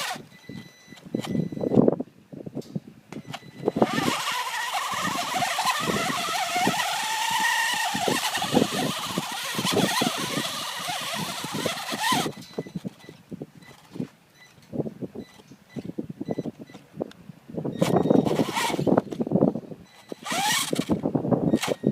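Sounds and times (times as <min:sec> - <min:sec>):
rc truck motor whining: 0:00.0 - 0:01.4, 0:03.2 - 0:14.0, 0:17.8 - 0:19.2, 0:19.9 - 0:21.9.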